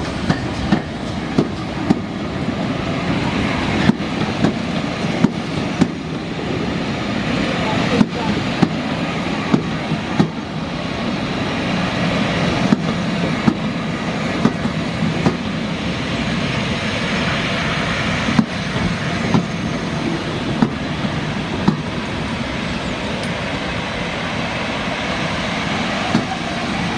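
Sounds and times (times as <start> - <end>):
train rumbling: 0.0 - 26.9
wheels clicking over rail joints: 18.3 - 23.7.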